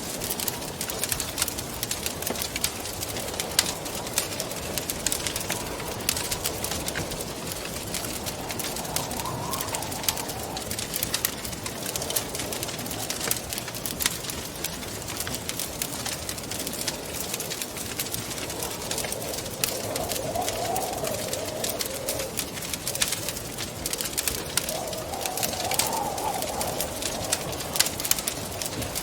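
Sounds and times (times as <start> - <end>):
wind rushing and howling: 0.0 - 29.0
wood fire crackling and popping: 0.0 - 29.0.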